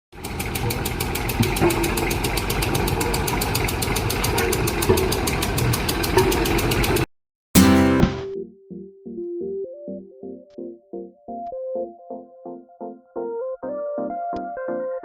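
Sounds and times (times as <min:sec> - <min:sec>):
heavy engine idling: 0:00.2 - 0:07.0.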